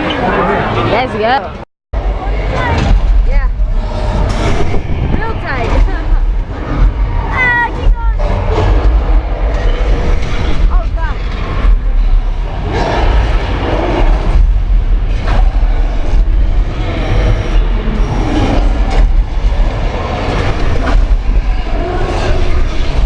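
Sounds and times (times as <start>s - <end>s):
low rumble: 2.0s - 23.0s.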